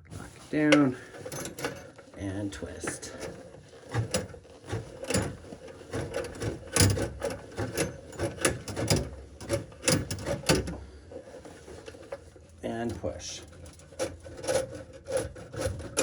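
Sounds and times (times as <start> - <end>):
drain snake cable clicking and scraping: 0.0 - 16.0.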